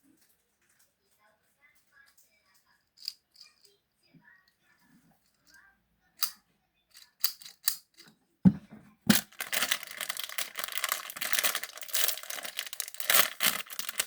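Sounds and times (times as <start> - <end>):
thump: 8.5 - 9.2
plastic packaging crinkling: 9.1 - 14.0.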